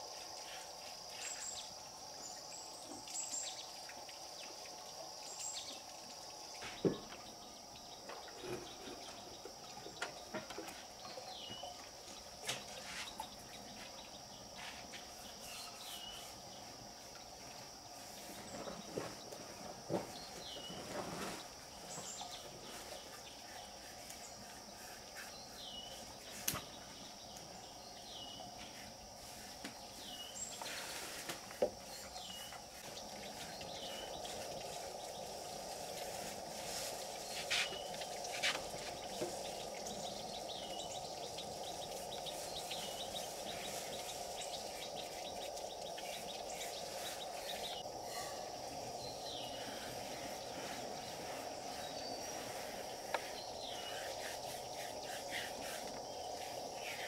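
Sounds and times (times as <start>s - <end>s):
insect drone: 0.0s - 57.0s.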